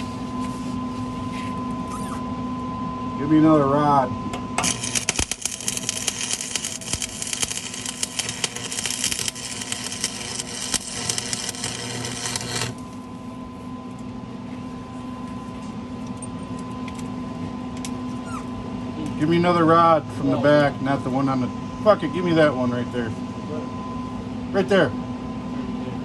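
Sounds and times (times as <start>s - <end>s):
steady electrical hum: 0.0s - 26.0s
welding arc crackling and sizzling: 4.6s - 13.1s.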